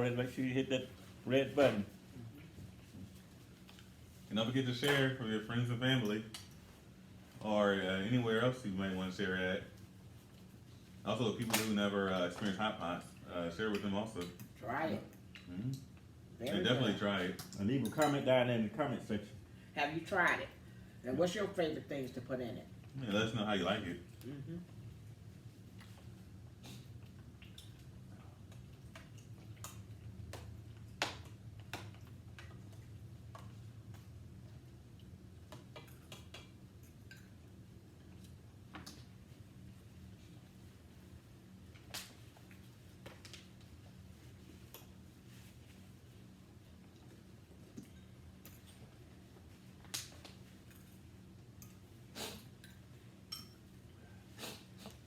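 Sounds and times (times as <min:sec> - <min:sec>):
steady low hum: 0:00.0 - 0:55.0
utensils clinking against bowls: 0:17.8 - 0:18.3, 0:52.6 - 0:53.6.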